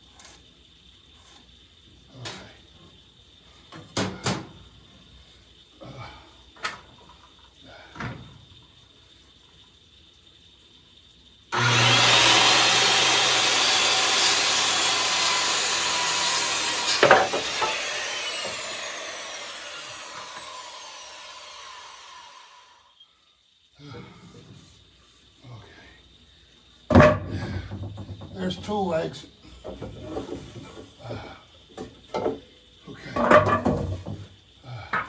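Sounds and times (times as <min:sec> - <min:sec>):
electric saw cutting wood: 0:11.5 - 0:23.0.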